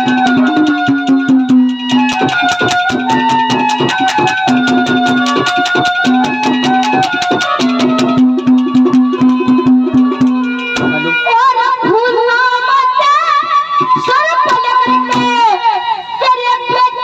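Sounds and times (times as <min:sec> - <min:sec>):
fast hand drum rhythm: 0:00.0 - 0:11.3, 0:13.8 - 0:15.5
harmonium chords: 0:00.0 - 0:17.0.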